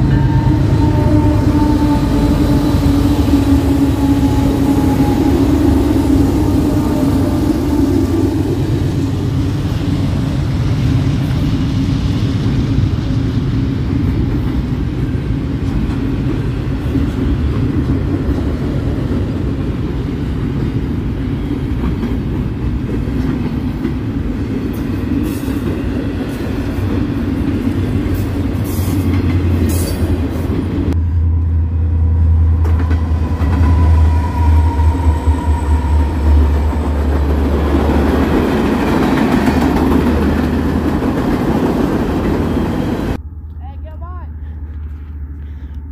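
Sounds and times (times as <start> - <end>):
train rumbling and rattling: 0.0 - 45.9
deep loud low drone: 42.7 - 43.6.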